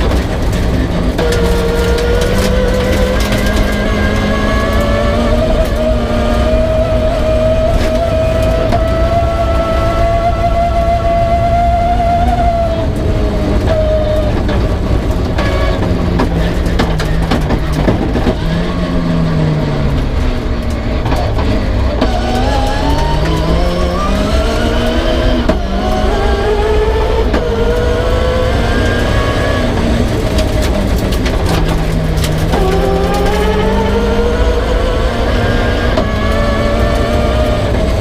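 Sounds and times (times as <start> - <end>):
sharp clicks and knocks: 0.0 - 5.9, 12.9 - 18.7, 19.9 - 38.0
rally car engine driven hard: 0.0 - 38.0.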